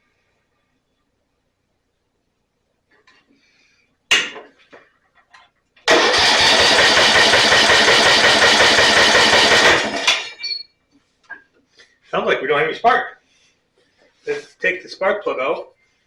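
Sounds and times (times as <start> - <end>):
electric starter cranking engine: 5.9 - 10.4.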